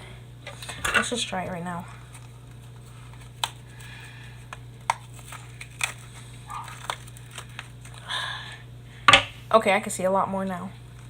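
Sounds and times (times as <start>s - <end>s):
steady low hum: 0.0s - 11.0s
paper casing crunching: 2.0s - 8.1s
tool tapping firework shell: 9.1s - 9.4s.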